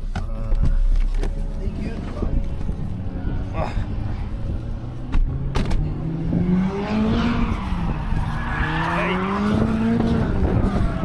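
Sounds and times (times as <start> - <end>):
go-kart engines revving: 2.9 - 11.0.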